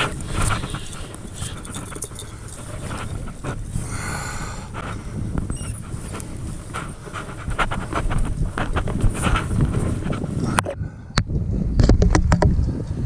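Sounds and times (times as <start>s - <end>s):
wind rumbling on microphone: 0.0s - 13.0s
person panting: 3.7s - 8.0s.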